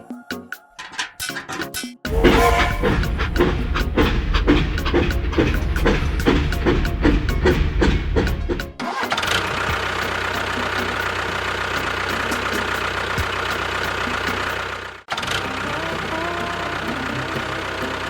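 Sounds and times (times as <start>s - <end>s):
percussive music: 1.2s - 9.0s
vehicle engine running: 2.1s - 18.0s.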